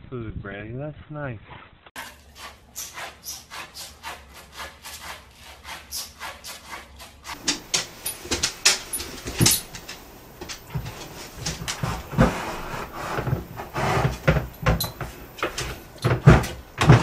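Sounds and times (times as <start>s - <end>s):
dog pawing at wall: 6.0s - 17.0s
plastic bin knocking and clattering: 13.2s - 17.0s.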